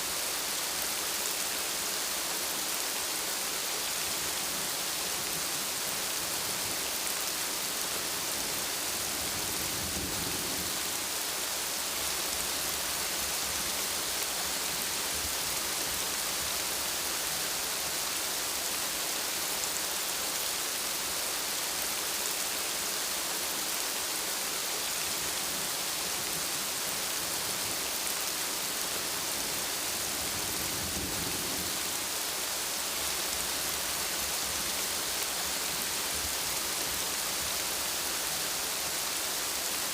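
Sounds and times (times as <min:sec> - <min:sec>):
dense rain hissing: 0:00.0 - 0:39.9.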